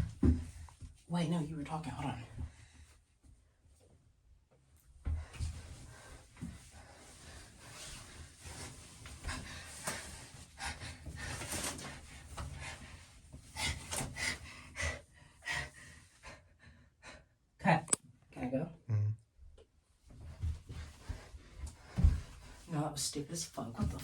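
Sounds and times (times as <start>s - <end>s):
knocks and bumps on bathtub: 0.0s - 0.7s, 21.8s - 22.5s, 23.8s - 24.0s
clothing rustling: 5.4s - 13.9s.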